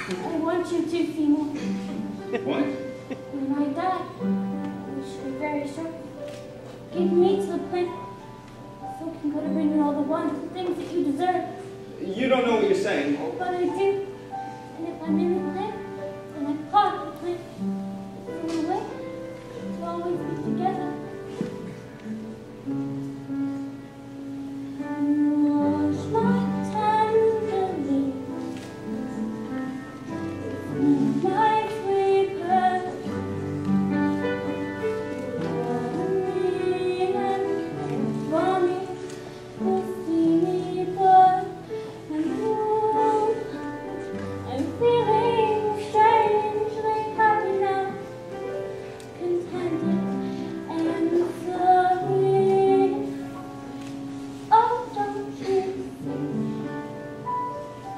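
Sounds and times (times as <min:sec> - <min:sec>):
instrumental accompaniment: 0:00.0 - 0:57.9
woman singing a slow ballad: 0:25.0 - 0:28.4, 0:30.4 - 0:33.3, 0:34.0 - 0:48.4, 0:49.1 - 0:53.2, 0:54.4 - 0:56.4.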